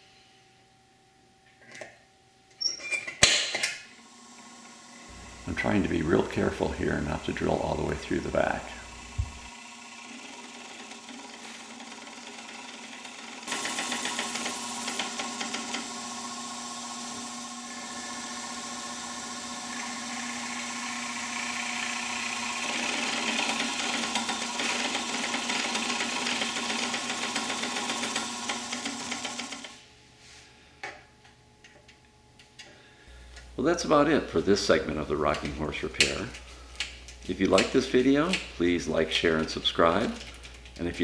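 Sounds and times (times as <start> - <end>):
electric drill boring into wood: 4.0 - 29.8.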